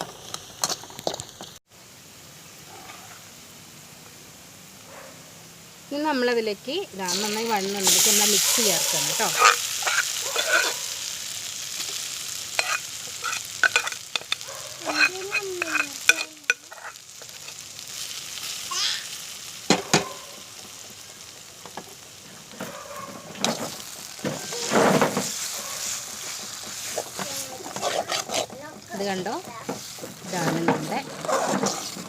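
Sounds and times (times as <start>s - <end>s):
masala sizzling in hot oil: 0.0s - 32.0s
spoon knocking and scraping pan: 7.1s - 10.9s, 11.8s - 17.6s, 19.7s - 32.0s.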